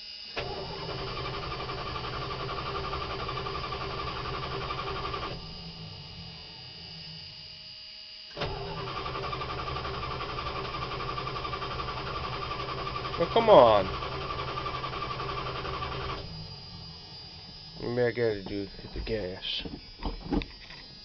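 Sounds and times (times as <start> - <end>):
engine cranking on starter: 0.4 - 6.0, 8.3 - 17.6.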